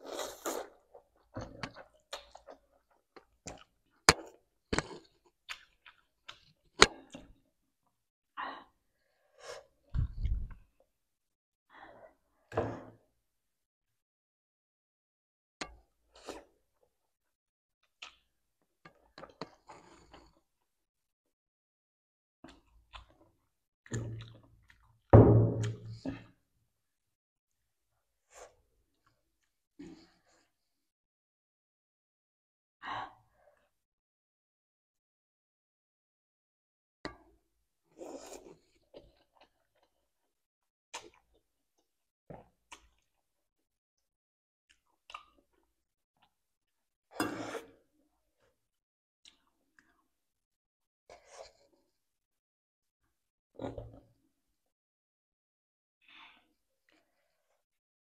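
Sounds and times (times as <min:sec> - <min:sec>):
slurping noodles: 0:00.0 - 0:00.9, 0:47.2 - 0:47.9
chewing with wet mouth clicks: 0:04.8 - 0:06.9, 0:44.7 - 0:45.6.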